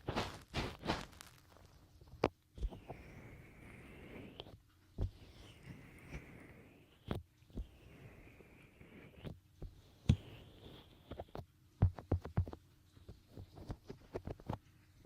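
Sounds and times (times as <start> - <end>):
fingertips rubbing a microphone: 2.6 - 14.6.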